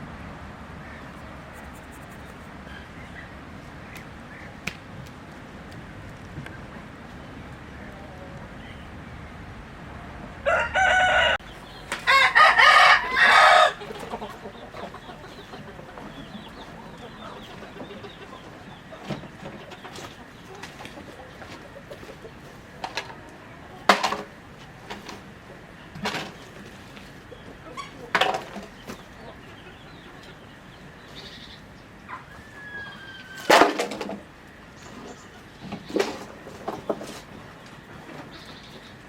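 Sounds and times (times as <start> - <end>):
chickens clucking and squawking: 0.0 - 5.0, 6.5 - 39.0
rooster crowing: 10.4 - 14.5, 32.1 - 33.8.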